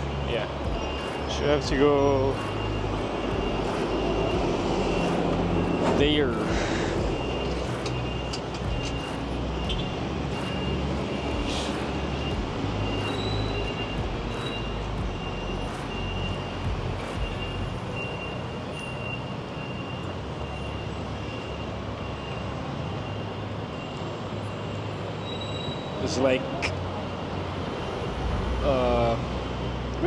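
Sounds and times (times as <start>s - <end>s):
rumble of passing vehicles: 0.0s - 30.0s
short high beeps: 2.2s - 20.9s.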